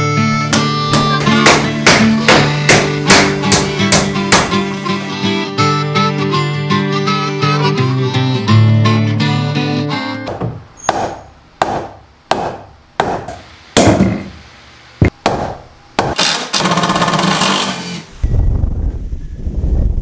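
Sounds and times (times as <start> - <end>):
hammer blows on wood: 0.4 - 5.1
power tool running: 0.7 - 5.1, 16.2 - 18.2.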